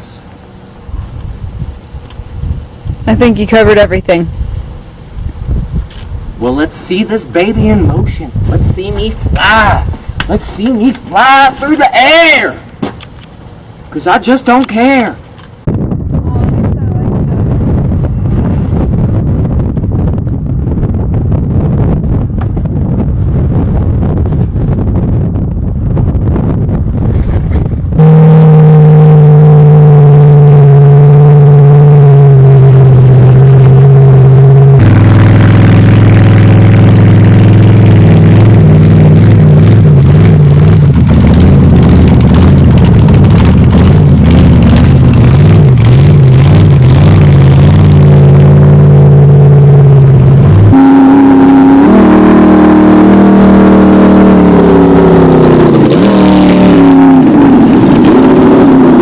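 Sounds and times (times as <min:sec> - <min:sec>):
diesel truck engine running hard: 0:27.7 - 0:59.0.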